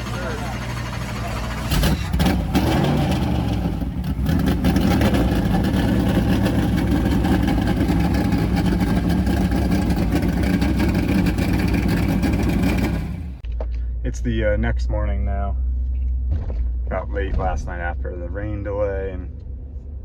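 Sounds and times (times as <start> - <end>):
vehicle engine running loudly: 0.0 - 13.4.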